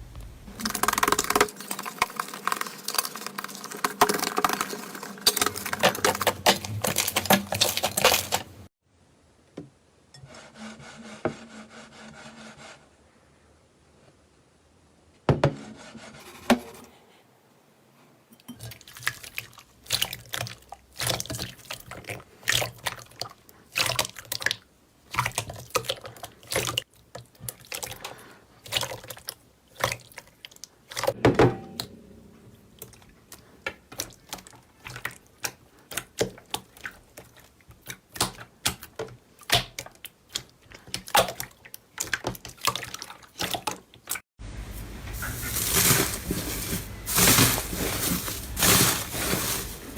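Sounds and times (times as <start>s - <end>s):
slime squelching: 0.1s - 8.7s, 18.6s - 31.2s, 32.8s - 49.9s.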